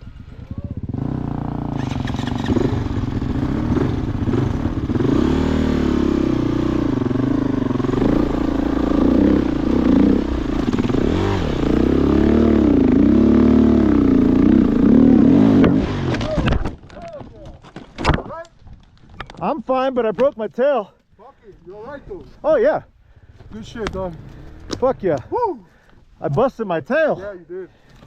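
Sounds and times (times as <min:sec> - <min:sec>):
dirt bike engine revving: 0:00.0 - 0:16.3.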